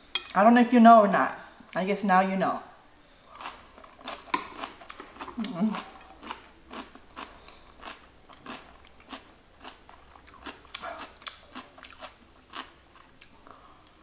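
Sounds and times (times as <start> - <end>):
close-up chewing with wet crunches: 3.9 - 13.4.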